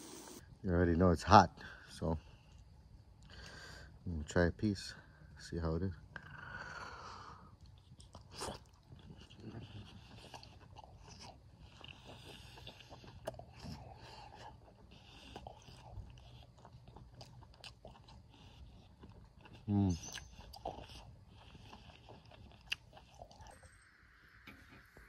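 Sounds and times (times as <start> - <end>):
person chewing food: 7.4 - 23.6.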